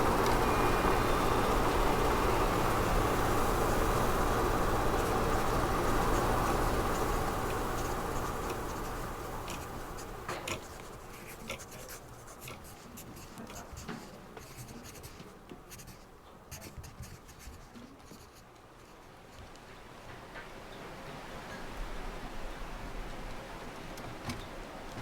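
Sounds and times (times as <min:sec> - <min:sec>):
pen scratching on paper: 0:03.4 - 0:18.4.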